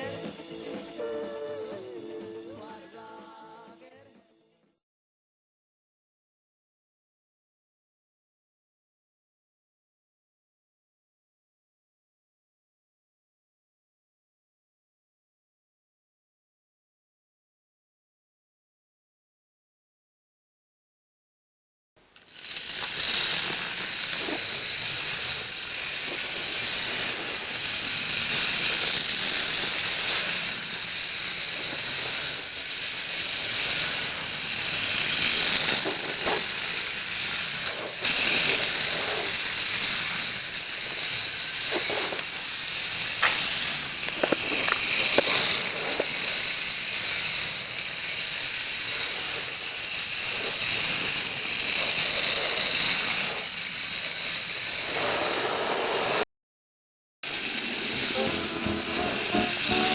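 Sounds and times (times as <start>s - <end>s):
clockwork toy whirring rattle: 22.0s - 56.3s, 57.2s - 59.9s.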